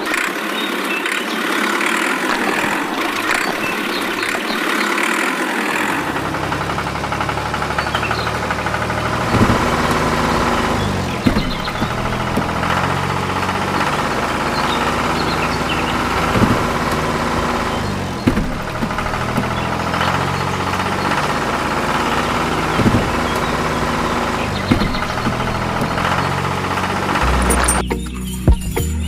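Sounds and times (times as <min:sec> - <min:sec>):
sharp knocks: 0:07.2 - 0:28.7.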